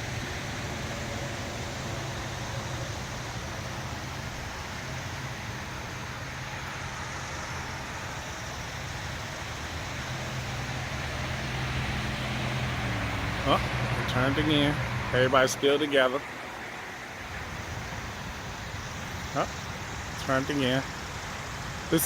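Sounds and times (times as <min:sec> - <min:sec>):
constant low hum: 0:00.0 - 0:22.0
even hiss: 0:00.0 - 0:22.0.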